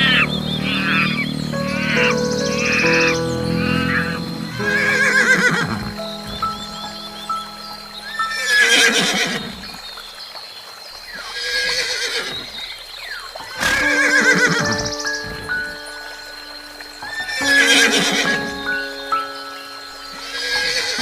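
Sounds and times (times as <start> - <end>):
background music with held notes: 0.0 - 9.5, 13.7 - 21.0.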